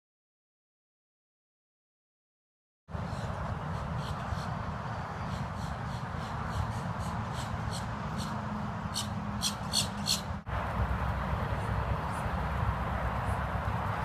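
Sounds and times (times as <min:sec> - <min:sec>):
outdoor background rumble: 0:02.9 - 0:14.0
small bird chirping: 0:08.9 - 0:10.3.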